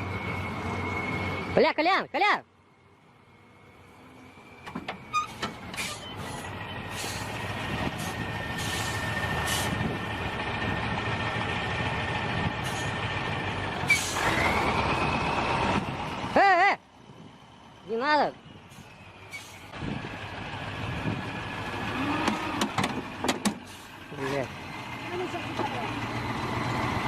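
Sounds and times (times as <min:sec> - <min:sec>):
heavy engine running: 0:03.4 - 0:27.0.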